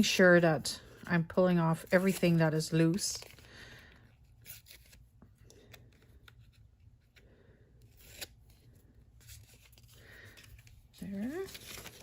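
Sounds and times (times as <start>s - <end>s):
paper rustling and tearing: 7.9s - 12.0s.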